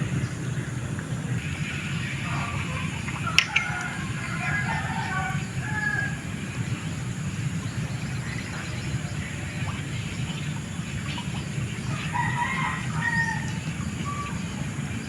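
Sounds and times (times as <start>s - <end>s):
steady low rumble: 0.0s - 15.0s
rooster crowing: 2.2s - 6.6s, 11.8s - 14.7s.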